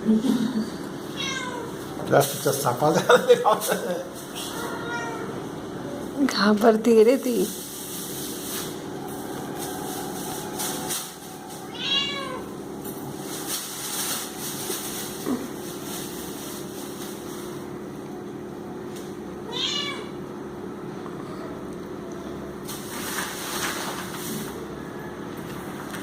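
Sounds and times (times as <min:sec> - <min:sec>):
low background hum: 0:00.0 - 0:26.0
cat mewing: 0:01.1 - 0:01.8, 0:04.3 - 0:05.5, 0:11.3 - 0:12.6, 0:19.4 - 0:20.2.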